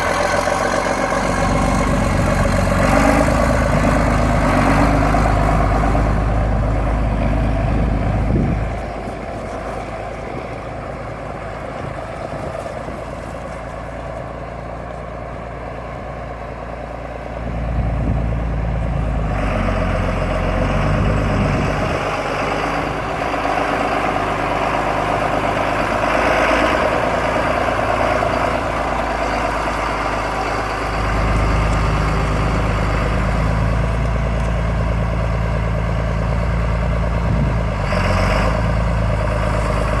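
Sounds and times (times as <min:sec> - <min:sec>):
tractor diesel engine idling: 0:00.0 - 0:40.0.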